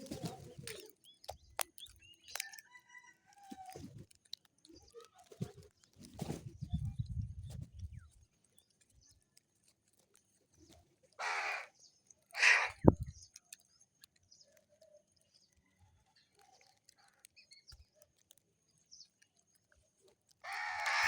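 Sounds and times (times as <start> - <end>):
crow cawing: 11.2 - 11.7, 12.3 - 12.8, 20.4 - 21.0.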